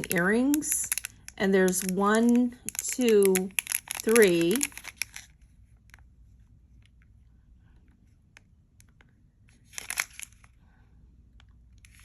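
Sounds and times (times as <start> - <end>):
plastic crinkling: 0.0 - 5.4, 9.6 - 10.5
plastic packaging clicks and rustles: 0.0 - 5.4, 9.6 - 10.5.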